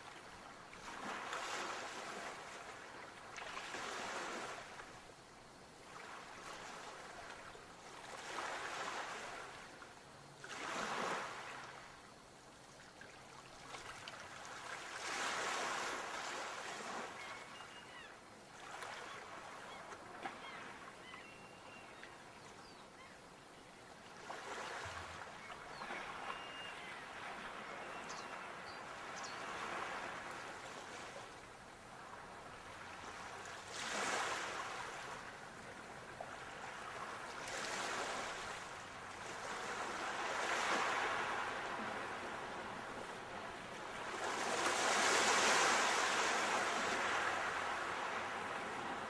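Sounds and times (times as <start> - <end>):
faint bird calls: 16.6 - 23.7, 24.3 - 31.3
sea waves washing in: 36.1 - 49.0.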